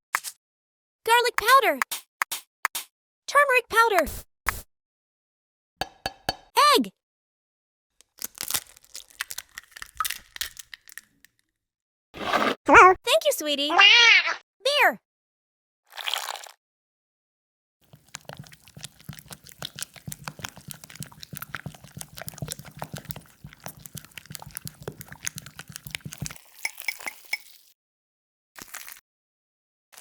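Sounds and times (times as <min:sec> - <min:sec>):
egg being beaten in a bowl: 0:05.8 - 0:06.4, 0:17.8 - 0:27.6.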